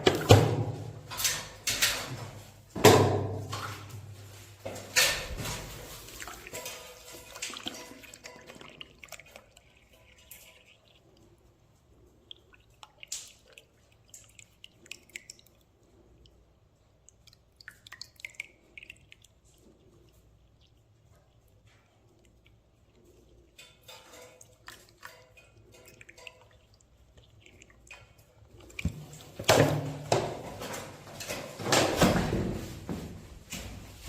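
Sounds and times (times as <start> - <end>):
water dripping: 3.5 - 31.6
water splashing through drain: 5.0 - 16.1, 17.0 - 32.3.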